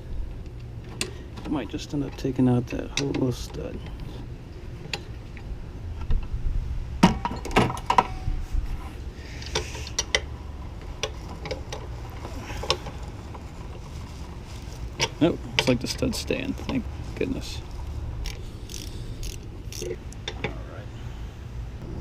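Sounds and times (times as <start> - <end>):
steady low hum: 0.0 - 22.0
socket wrench clicking: 18.2 - 20.5.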